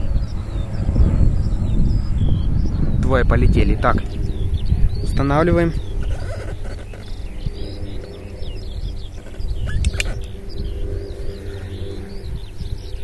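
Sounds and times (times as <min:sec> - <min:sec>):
birds chirping: 0:00.0 - 0:13.0
steady low rumble: 0:00.0 - 0:13.0
sharp clicks: 0:09.2 - 0:10.4.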